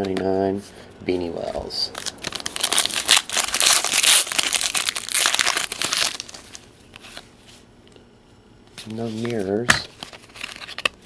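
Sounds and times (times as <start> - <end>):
wrapper crinkling: 1.9 - 7.2, 10.0 - 11.0.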